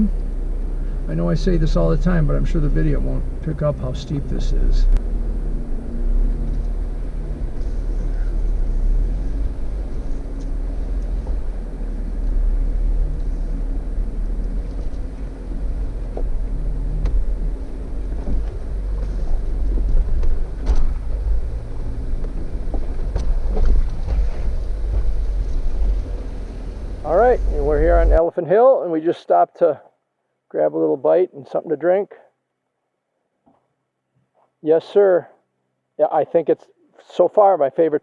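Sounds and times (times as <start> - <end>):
vehicle engine rumbling: 0.0 - 28.2
vehicle knocking on rock: 22.2 - 25.7.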